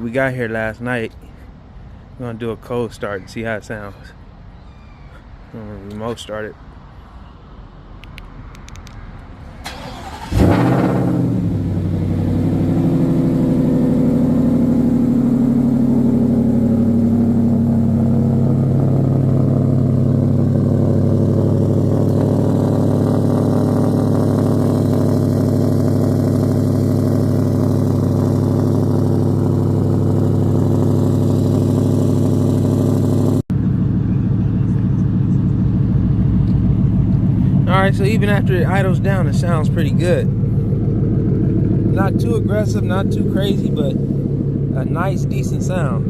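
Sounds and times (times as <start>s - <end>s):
engine cranking: 9.6s - 11.2s
engine revving then idling: 9.7s - 46.0s.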